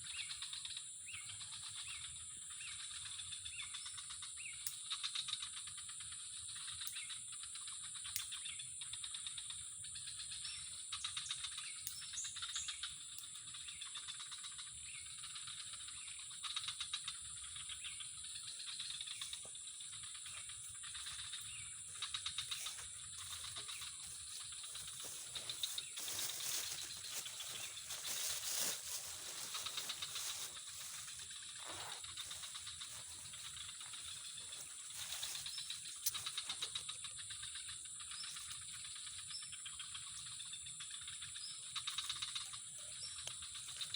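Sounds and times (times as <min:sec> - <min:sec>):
steady high-pitched hiss: 0:11.6 - 0:43.9.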